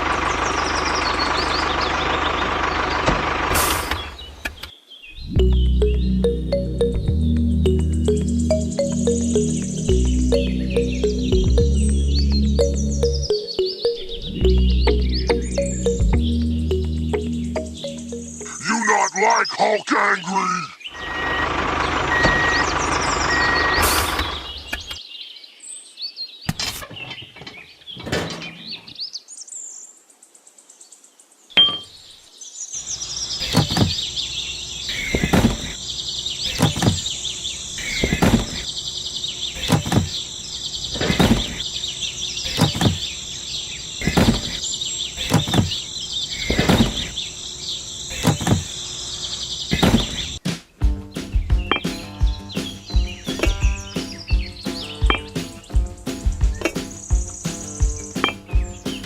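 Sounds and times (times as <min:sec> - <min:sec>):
high-pitched chirping: 0:05.2 - 0:19.5, 0:51.6 - 0:59.0.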